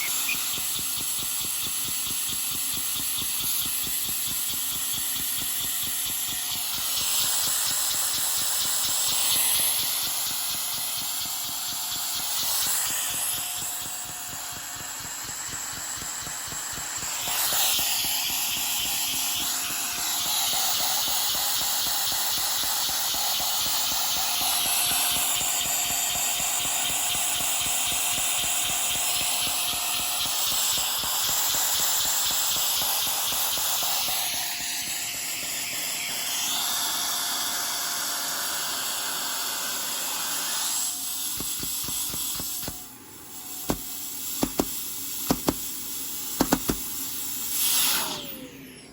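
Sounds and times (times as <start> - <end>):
hissing air: 40.9 - 48.8.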